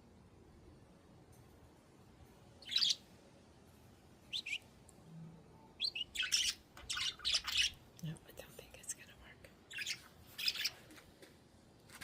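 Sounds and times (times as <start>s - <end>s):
budgerigars chirping and squawking: 2.6s - 3.0s, 4.3s - 4.6s, 5.8s - 7.8s, 9.7s - 10.8s.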